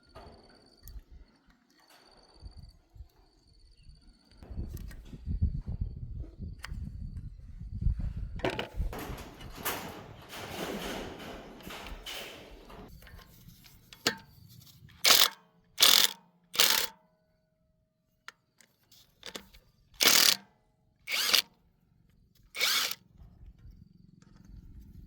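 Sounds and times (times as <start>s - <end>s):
handheld power tool bursts: 15.0s - 17.0s, 19.2s - 20.5s, 21.1s - 21.6s, 22.5s - 23.0s
sharp click: 15.0s - 17.0s.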